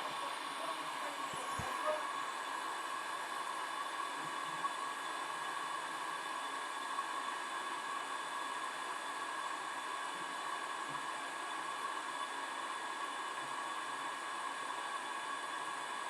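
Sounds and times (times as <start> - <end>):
hot-air station blowing: 0.0 - 2.3
faint fan whine: 0.0 - 16.0.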